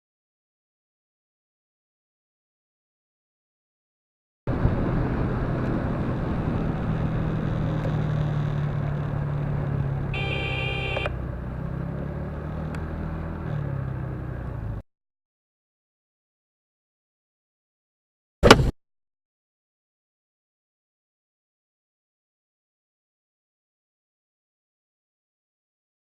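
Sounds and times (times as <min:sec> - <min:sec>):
car road and engine noise: 0:04.5 - 0:14.8, 0:18.4 - 0:18.7
car horn blaring: 0:10.1 - 0:11.2.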